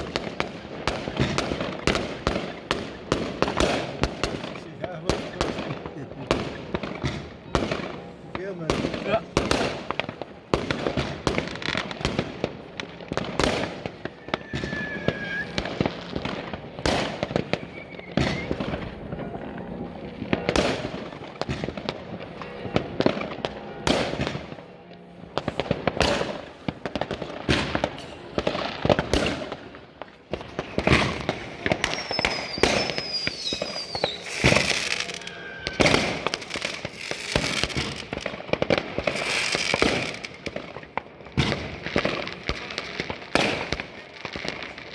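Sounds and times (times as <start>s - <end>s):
fireworks banging and crackling: 0.0s - 44.9s
falling firework whistles: 13.5s - 16.1s, 17.0s - 19.0s, 30.6s - 38.3s, 39.0s - 40.4s.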